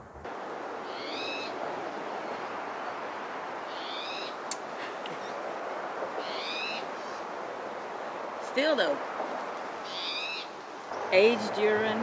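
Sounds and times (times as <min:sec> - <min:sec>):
background hiss: 0:00.0 - 0:12.0
bird calling: 0:00.8 - 0:01.6, 0:03.6 - 0:05.4, 0:06.2 - 0:07.3, 0:09.7 - 0:11.8.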